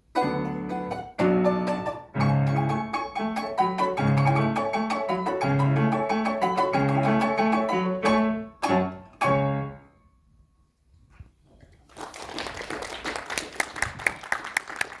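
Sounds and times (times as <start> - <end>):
plucked string instrument: 0.0 - 9.9
piano chords: 0.0 - 10.0
audience applause: 11.8 - 15.0.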